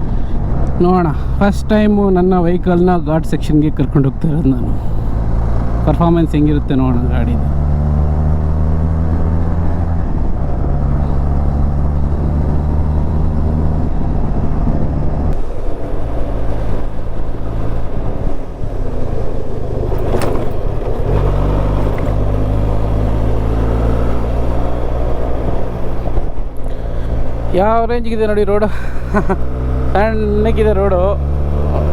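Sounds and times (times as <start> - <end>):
wind rushing: 4.6 - 27.9
motorcycle engine revving: 4.7 - 27.9, 28.6 - 31.9.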